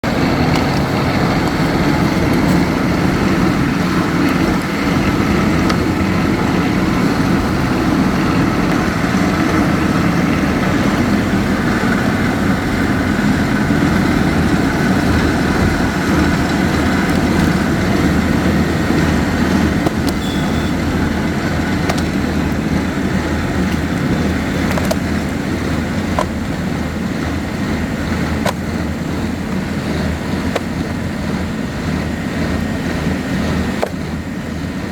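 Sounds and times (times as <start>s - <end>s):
rock-drilling machinery drone: 0.0s - 34.9s.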